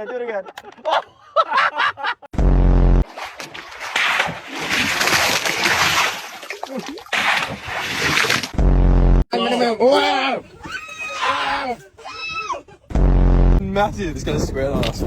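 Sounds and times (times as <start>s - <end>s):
loud buzz: 2.4s - 3.0s
water splashing and sloshing: 3.0s - 8.6s.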